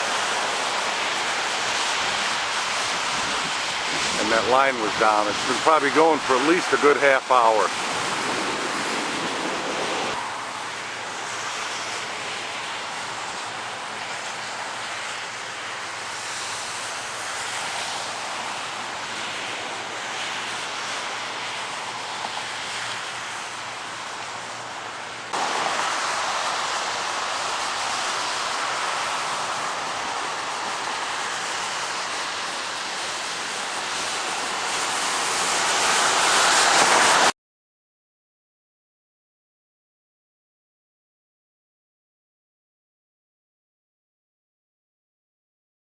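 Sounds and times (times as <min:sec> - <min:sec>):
electrical hiss: 0:00.0 - 0:37.3.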